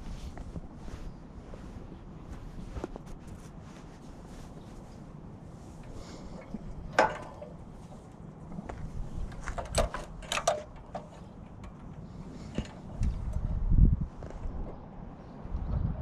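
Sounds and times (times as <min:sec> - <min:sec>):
hard parts knocking and clinking: 0:06.9 - 0:07.6, 0:09.3 - 0:13.3.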